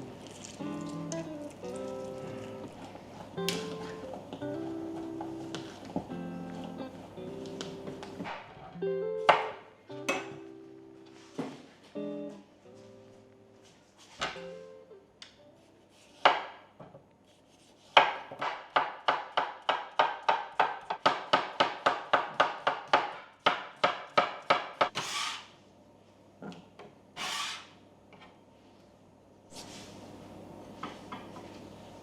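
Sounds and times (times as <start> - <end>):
rapid sharp wooden strokes: 23.4 - 25.5, 27.2 - 27.8.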